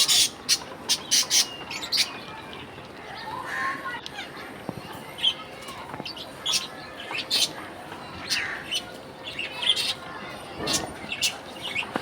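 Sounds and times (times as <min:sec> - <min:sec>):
budgerigars chirping: 0:00.0 - 0:02.2, 0:06.1 - 0:07.6, 0:08.2 - 0:10.0, 0:10.7 - 0:11.9.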